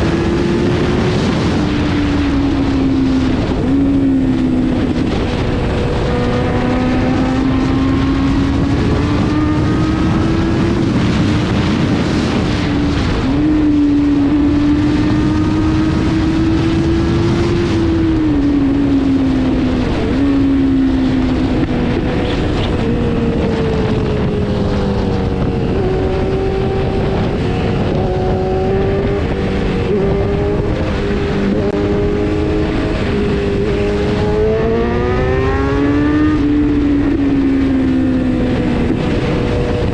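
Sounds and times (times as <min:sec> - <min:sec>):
motorcycle engine revving through gears: 0:00.0 - 0:39.9
wind noise: 0:00.0 - 0:39.9.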